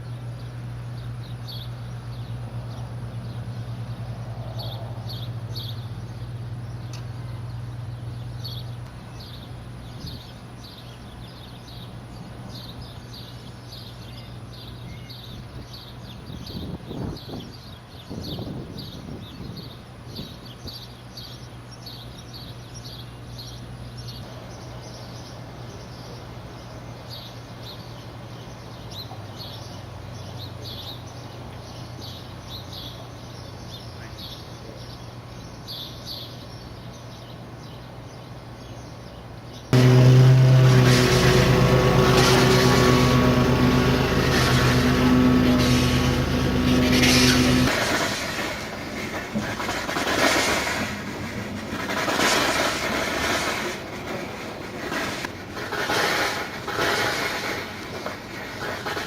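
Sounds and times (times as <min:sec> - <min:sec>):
low mechanical hum: 0:00.0 - 0:32.4, 0:33.6 - 0:47.8
loud machine droning: 0:39.8 - 0:48.0.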